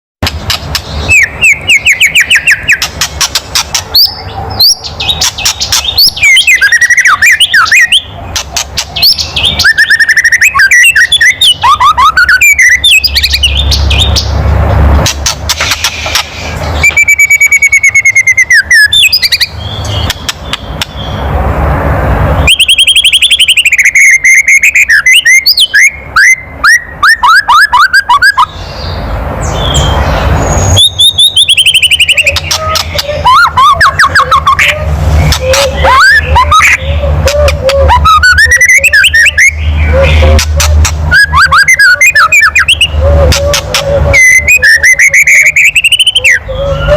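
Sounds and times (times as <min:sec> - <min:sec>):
bird rattle call: 0:00.2 - 0:04.2, 0:05.1 - 0:12.1, 0:15.0 - 0:17.6
bird whistled glides and trills: 0:00.2 - 0:14.4, 0:15.0 - 0:21.2, 0:22.4 - 0:46.9.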